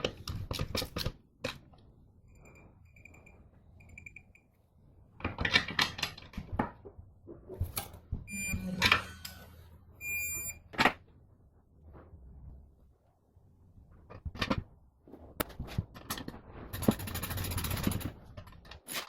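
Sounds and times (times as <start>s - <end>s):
short buzzy electronic beeps: 8.3s - 10.6s.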